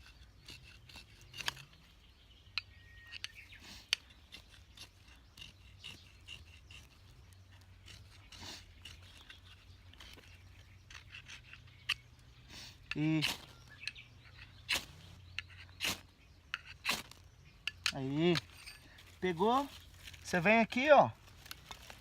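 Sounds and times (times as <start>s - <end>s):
knife clicks and scrapes: 0.0s - 1.8s, 2.5s - 7.0s, 7.8s - 12.1s, 13.7s - 17.0s
small birds chirping: 0.0s - 22.0s.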